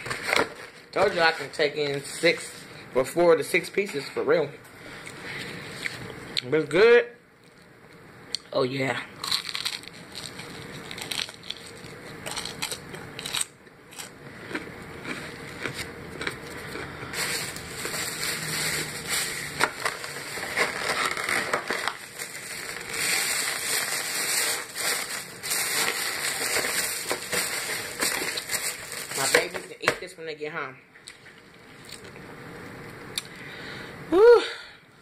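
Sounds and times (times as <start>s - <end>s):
crunching and chewing fried food: 9.2s - 29.6s, 31.1s - 32.2s.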